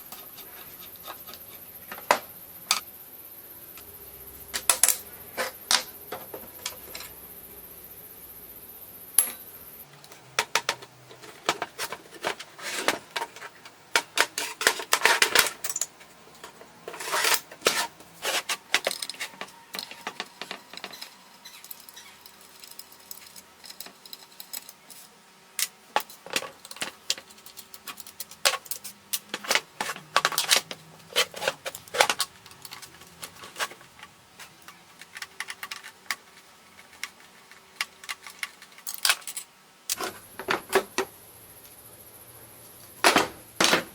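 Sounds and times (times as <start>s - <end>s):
metal tools clinking and rattling: 14.0s - 17.8s
metal scraping: 16.5s - 25.2s.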